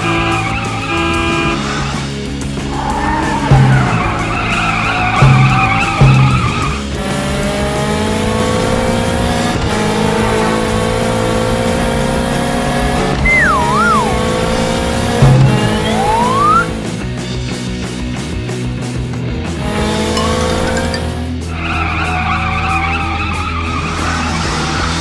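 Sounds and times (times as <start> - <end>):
background music: 0.0 - 25.0
sports car engine sound effect: 2.5 - 17.1, 19.5 - 24.4
wavy falling tone: 13.0 - 17.0.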